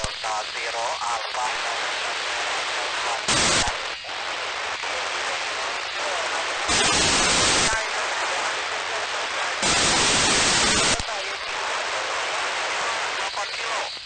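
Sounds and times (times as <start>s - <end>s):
radio receiver hiss: 0.0s - 14.0s
loud blasts of noise: 6.5s - 7.8s.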